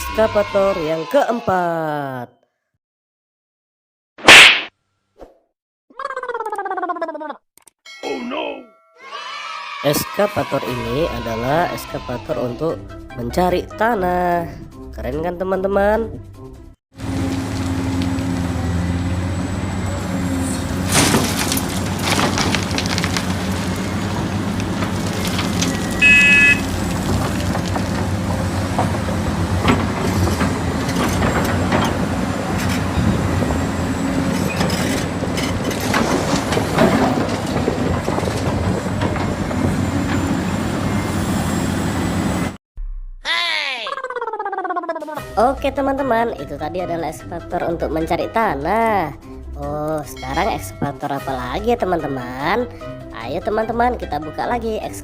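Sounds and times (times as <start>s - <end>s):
excavator diesel engine running: 17.0s - 42.6s
excavator bucket clanking: 20.7s - 40.5s
short high beep: 25.9s - 26.6s.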